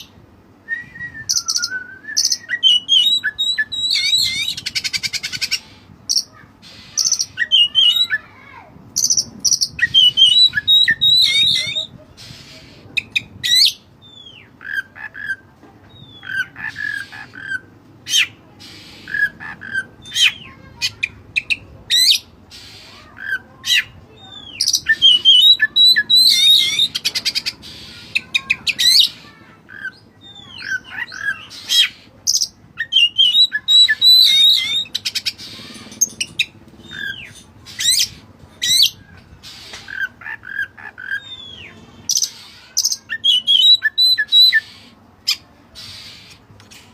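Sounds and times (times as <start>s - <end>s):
bird song with whistled notes: 0.7s - 5.6s, 9.0s - 11.9s, 30.2s - 35.4s, 42.9s - 44.7s
bird chattering: 1.3s - 46.9s
bird rasping squawks: 16.2s - 21.5s.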